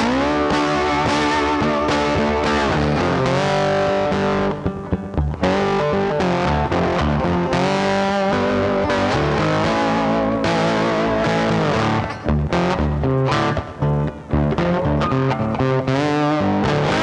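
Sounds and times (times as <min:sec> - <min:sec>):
rock music with distorted guitar: 0:00.0 - 0:17.0.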